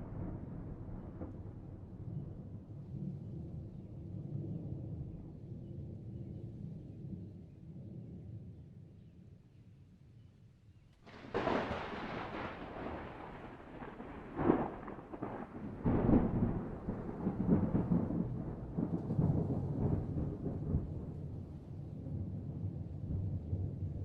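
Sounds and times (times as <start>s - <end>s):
thunder cracking and rumbling: 0.0s - 5.4s, 11.1s - 24.0s.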